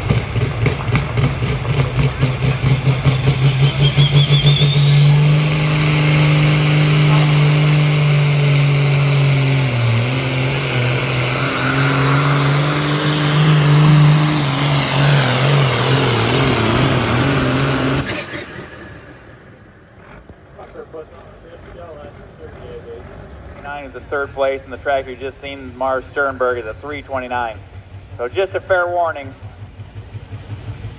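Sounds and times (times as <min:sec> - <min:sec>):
diesel engine at full throttle: 0:00.0 - 0:30.9
turbo whistle: 0:02.4 - 0:19.5.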